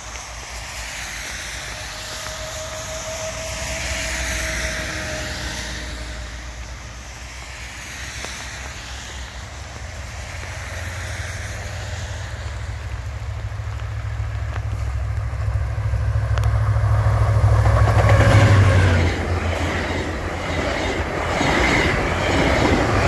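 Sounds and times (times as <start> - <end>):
distant train rumble: 0.0 - 23.0
rain and wind hiss: 0.0 - 23.0
long falling tone: 1.6 - 6.8.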